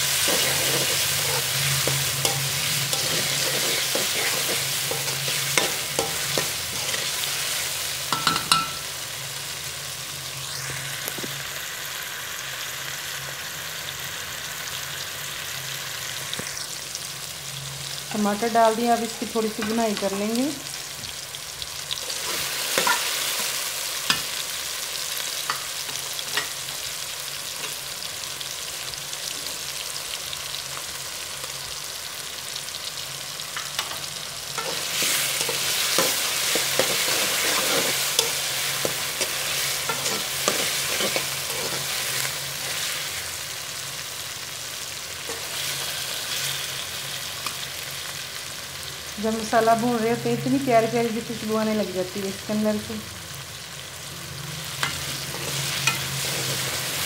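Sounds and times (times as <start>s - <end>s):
onions sizzling in hot oil: 0.0s - 57.0s
spatula scraping metal pan: 0.2s - 7.3s, 34.6s - 42.8s.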